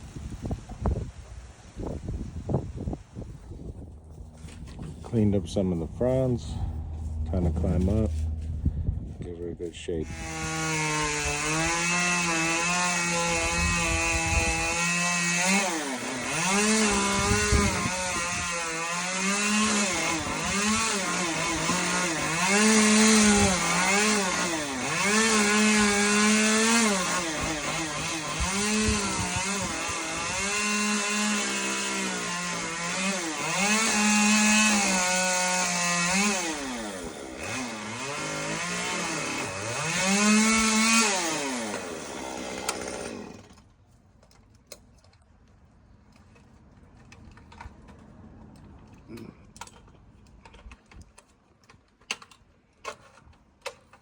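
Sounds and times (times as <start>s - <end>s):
chainsaw revving: 10.0s - 43.6s.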